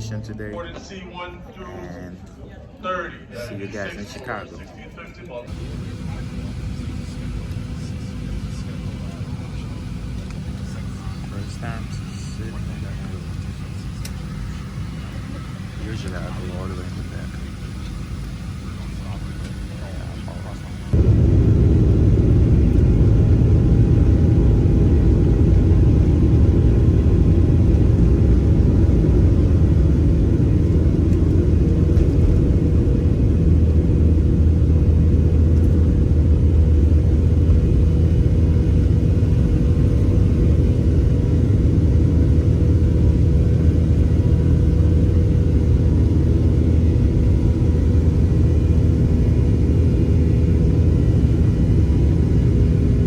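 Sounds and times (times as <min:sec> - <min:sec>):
jet engine cabin rumble: 0:05.5 - 0:53.0.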